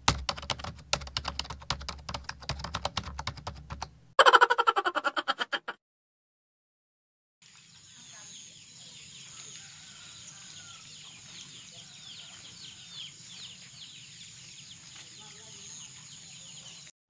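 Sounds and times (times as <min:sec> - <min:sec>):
small birds chirping: 0:07.4 - 0:16.9.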